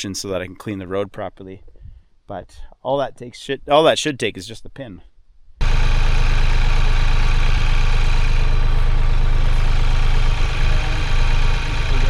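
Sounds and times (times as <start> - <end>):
vehicle engine rumbling: 5.6 - 12.0.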